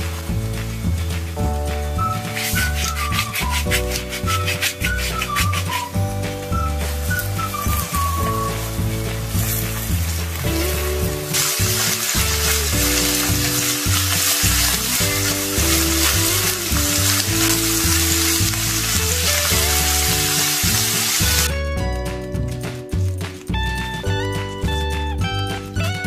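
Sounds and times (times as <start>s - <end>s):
spatula stirring: 0.0s - 21.5s
background music: 0.0s - 26.0s
meat sizzling in a pan: 6.6s - 21.5s.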